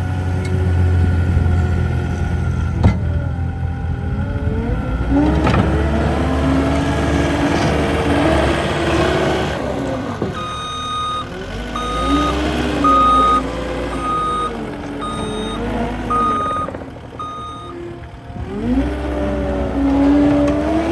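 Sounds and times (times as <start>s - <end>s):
diesel engine: 0.0s - 20.9s
reverse alarm beeps: 10.4s - 17.8s.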